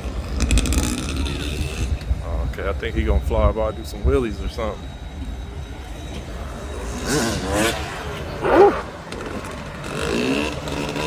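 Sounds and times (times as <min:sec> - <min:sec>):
motorcycle engine revving: 0:07.1 - 0:11.0.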